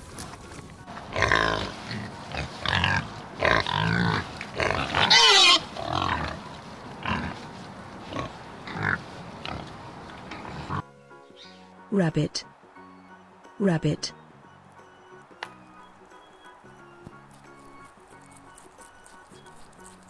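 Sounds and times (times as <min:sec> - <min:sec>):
pigs grunting and squealing: 0:01.0 - 0:10.8.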